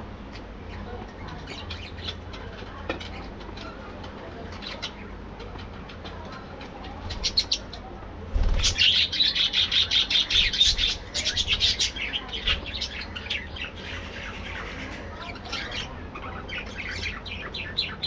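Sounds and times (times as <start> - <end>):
budgerigars chirping: 8.6 - 18.0.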